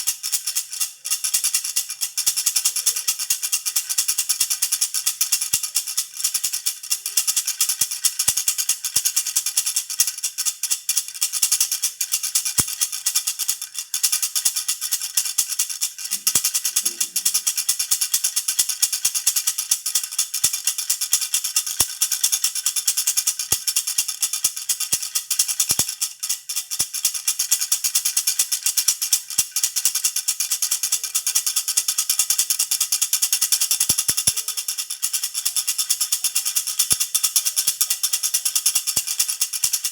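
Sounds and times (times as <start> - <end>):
baby rattle jingling: 20.6 - 39.9.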